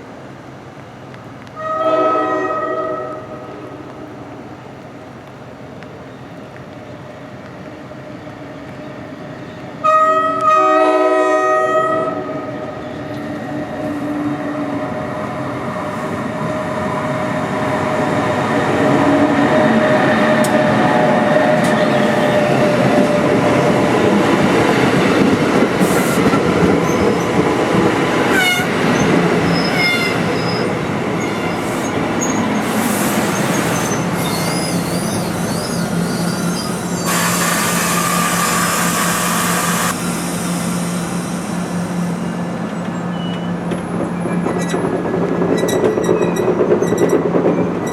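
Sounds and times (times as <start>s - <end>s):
train wheels rumbling on rails: 0.2s - 47.9s
train horn chord: 1.6s - 3.3s, 9.8s - 12.4s
wheel squeals: 28.3s - 38.8s, 42.7s - 47.9s.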